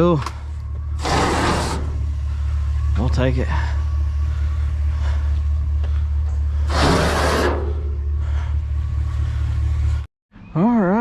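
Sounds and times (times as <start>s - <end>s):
truck engine idling: 0.0s - 10.1s
rushing scraping noise: 1.0s - 2.1s, 6.6s - 8.0s.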